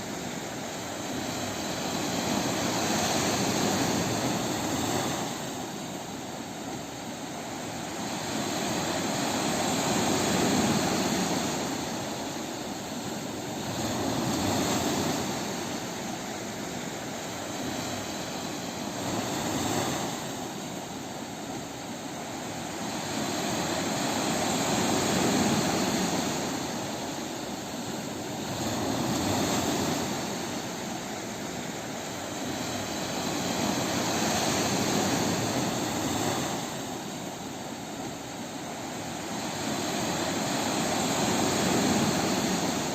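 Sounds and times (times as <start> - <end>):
waves breaking on beach: 0.0 - 42.9.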